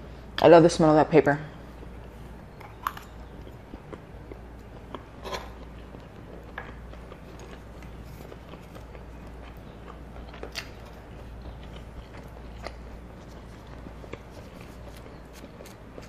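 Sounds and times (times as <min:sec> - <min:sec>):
steady low hum: 0:00.0 - 0:16.0
chewing: 0:01.8 - 0:16.0.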